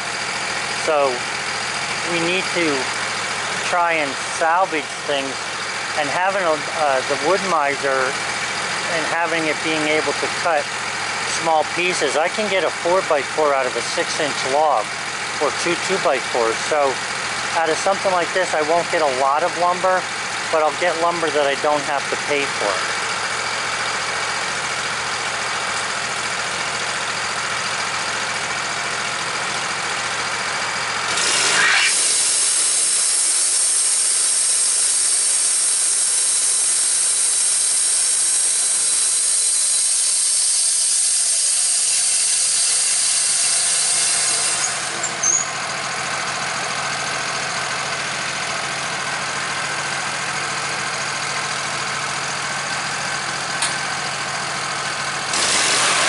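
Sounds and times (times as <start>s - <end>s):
sawmill engine running: 0.0s - 56.0s
band saw blade squealing: 31.1s - 33.1s, 37.9s - 45.6s.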